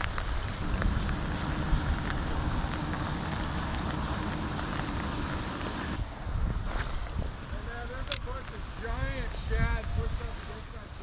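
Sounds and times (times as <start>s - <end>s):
raindrops ticking: 0.0s - 6.0s
steady low rumble: 0.0s - 10.3s
light rain falling: 0.0s - 11.0s.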